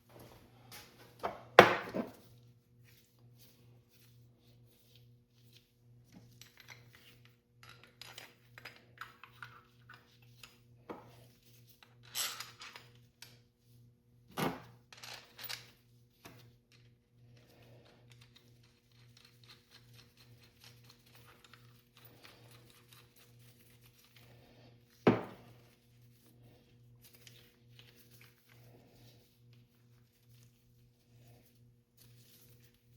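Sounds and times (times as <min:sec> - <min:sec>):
low electrical hum: 0:00.0 - 0:32.9.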